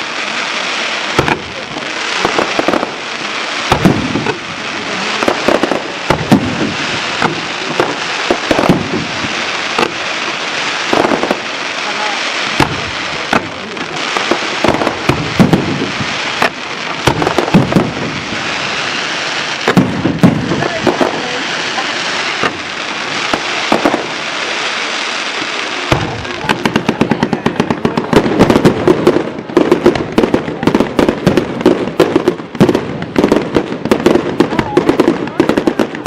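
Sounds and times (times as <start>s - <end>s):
fireworks crackling: 0.0s - 36.0s
fireworks shells bursting: 1.1s - 4.4s, 5.1s - 24.4s.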